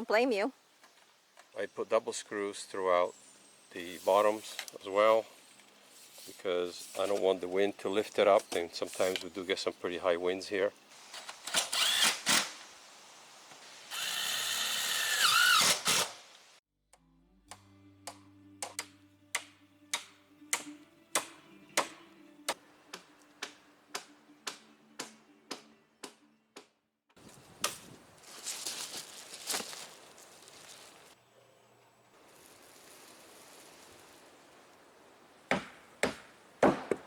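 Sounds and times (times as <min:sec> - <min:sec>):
power drill driving screws: 0:11.1 - 0:12.7, 0:13.8 - 0:16.4
music with low notes: 0:17.0 - 0:26.6.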